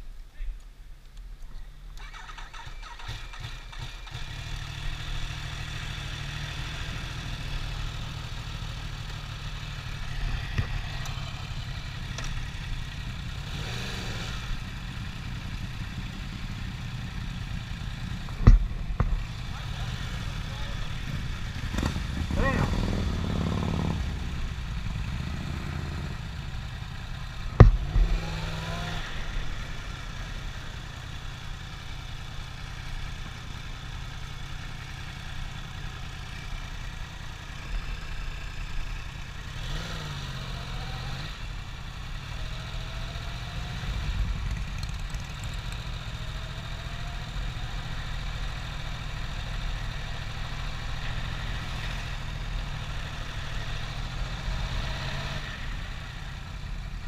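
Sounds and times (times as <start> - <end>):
vehicle engine idling: 1.9 - 39.8.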